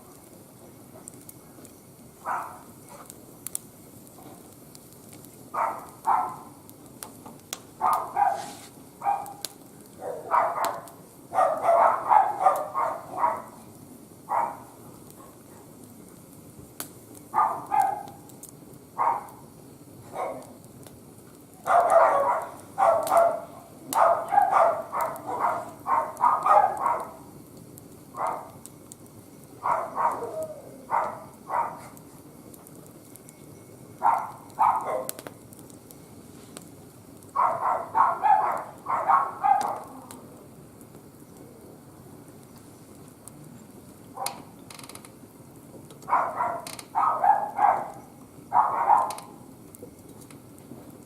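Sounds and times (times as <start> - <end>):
low steady background noise: 0.0 - 51.0
wood fire crackling: 0.0 - 51.0
dog barking: 2.2 - 3.1, 5.6 - 6.5, 7.8 - 9.4, 10.0 - 13.6, 14.3 - 15.7, 17.3 - 18.2, 19.0 - 19.4, 20.1 - 20.6, 21.6 - 27.2, 28.2 - 28.6, 29.6 - 32.0, 34.0 - 35.2, 37.4 - 39.9, 46.1 - 49.3.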